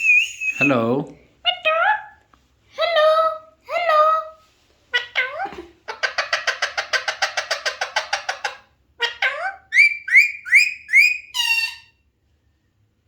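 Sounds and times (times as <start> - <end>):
parakeet harsh calls and squawks: 4.9 - 12.0.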